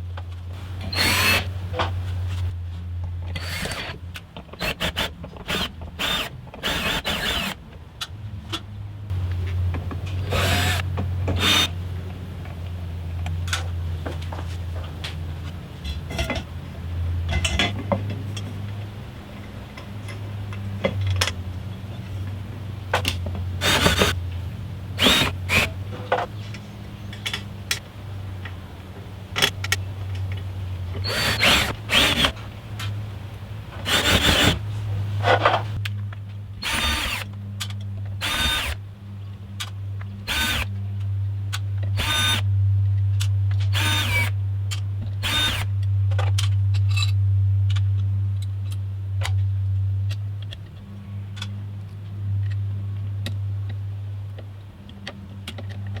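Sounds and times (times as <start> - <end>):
steady low hum: 0.0 - 56.0
power drill bursts: 0.9 - 1.5, 3.4 - 4.0, 4.6 - 7.6, 10.3 - 11.8, 23.6 - 24.2, 25.0 - 25.8, 31.0 - 32.4, 33.8 - 34.6, 36.6 - 37.3, 38.2 - 38.8, 40.3 - 40.7, 42.0 - 42.4, 43.7 - 44.3, 45.2 - 45.7.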